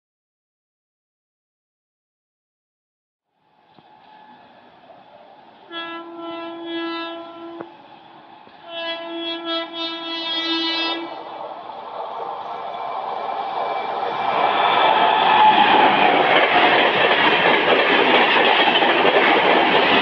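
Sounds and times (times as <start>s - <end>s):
rush of oncoming train: 3.4s - 20.0s
train horn blasts: 5.6s - 7.8s, 8.6s - 11.2s.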